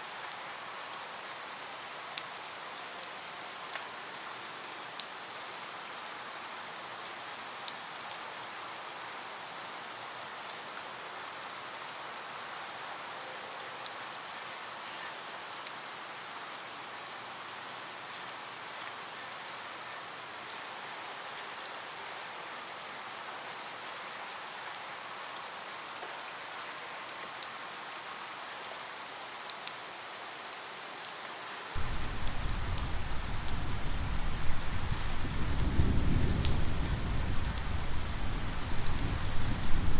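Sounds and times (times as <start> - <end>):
steady rain: 0.0 - 39.9
rumble of thunder: 31.8 - 39.9.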